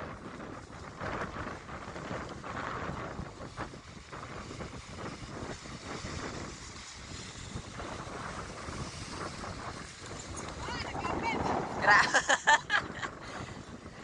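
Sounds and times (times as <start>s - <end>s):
wind buffeting the microphone: 0.0s - 14.0s.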